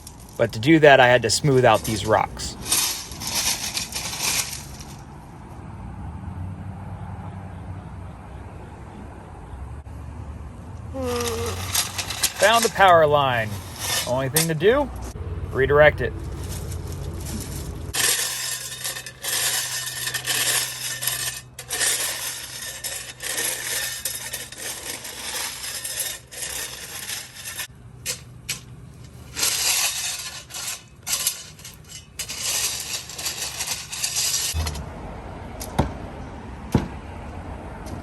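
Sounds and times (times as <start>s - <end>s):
metal tool scraping gravel: 0.0s - 5.3s, 11.0s - 34.9s
low hum: 34.6s - 35.6s.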